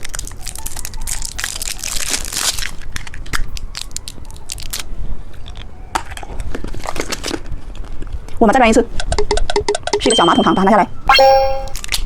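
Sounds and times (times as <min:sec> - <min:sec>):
hard candy crunching between teeth: 0:00.0 - 0:04.9.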